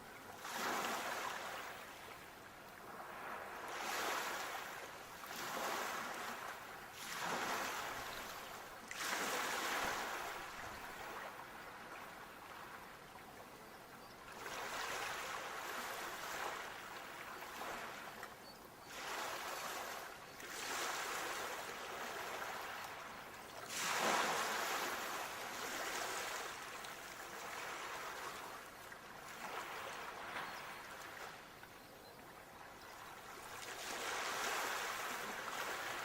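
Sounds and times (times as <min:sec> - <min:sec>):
sea waves washing ashore: 0:02.8 - 0:12.9, 0:18.9 - 0:31.4, 0:33.3 - 0:36.0.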